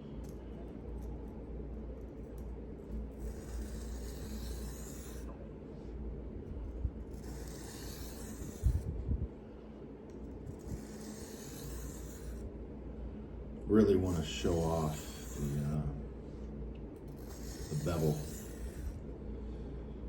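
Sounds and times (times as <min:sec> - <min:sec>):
knife on whetstone: 0:03.2 - 0:05.4, 0:07.1 - 0:08.8, 0:10.5 - 0:12.4, 0:14.1 - 0:15.8, 0:17.1 - 0:19.0.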